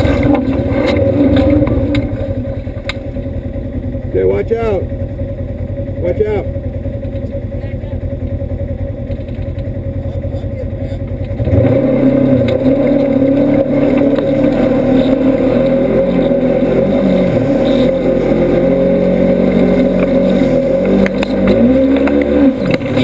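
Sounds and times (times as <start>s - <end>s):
engine revving under load: 0.0s - 3.5s, 10.0s - 23.0s.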